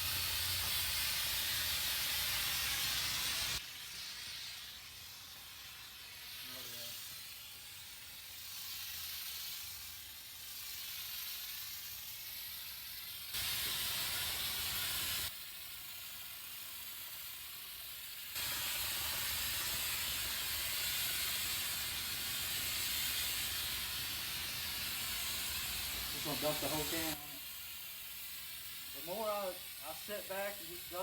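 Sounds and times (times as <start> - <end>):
aerosol can spraying hiss: 0.0 - 31.0
soft wavering hiss: 18.2 - 31.0.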